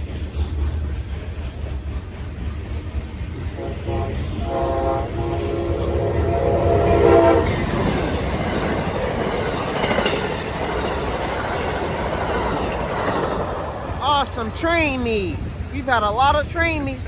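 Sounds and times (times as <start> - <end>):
wheels clattering over rail joints: 0.0 - 14.8
trains passing: 0.0 - 17.0
locomotive horn chord: 3.6 - 7.6.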